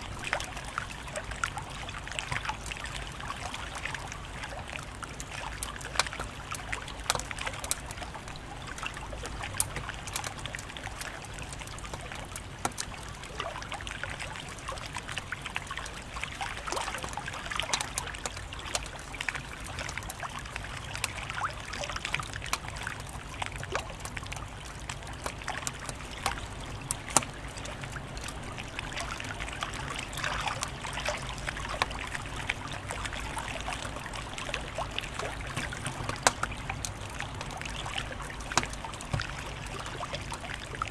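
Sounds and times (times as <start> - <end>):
wood fire crackling: 5.2 - 13.1, 34.3 - 40.9.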